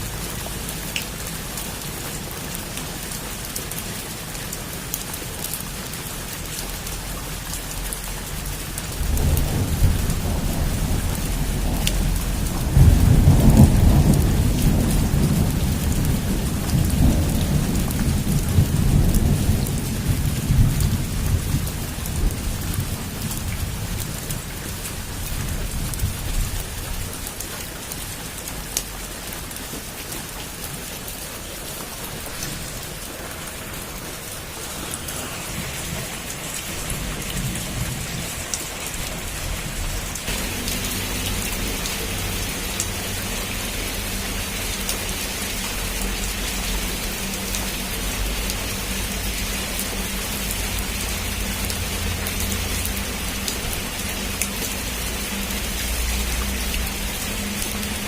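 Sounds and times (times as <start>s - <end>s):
heavy rain falling: 0.0s - 58.0s
thunder rumbling: 8.4s - 27.1s, 31.9s - 44.6s.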